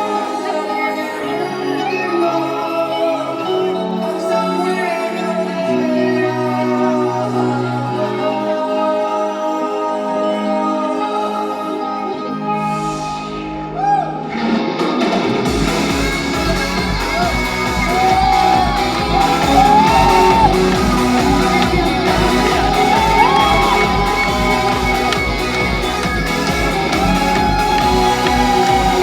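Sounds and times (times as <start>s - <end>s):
live band playing pop: 0.0s - 29.0s
kick drum beat: 15.5s - 29.0s
crowd shouting and whooping: 16.3s - 29.0s.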